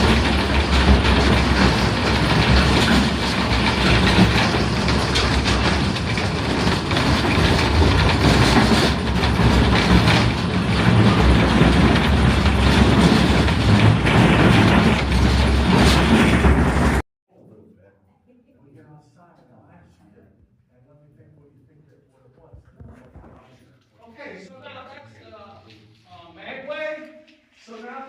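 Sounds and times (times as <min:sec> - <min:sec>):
rail cars rumbling on track: 0:00.0 - 0:17.0.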